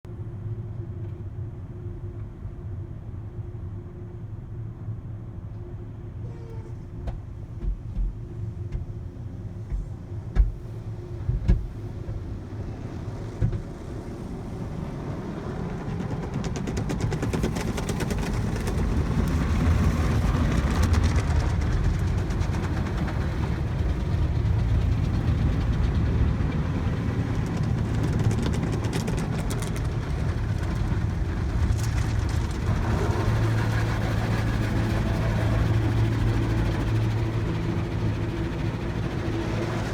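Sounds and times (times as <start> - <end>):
low hum: 8.1 - 39.9.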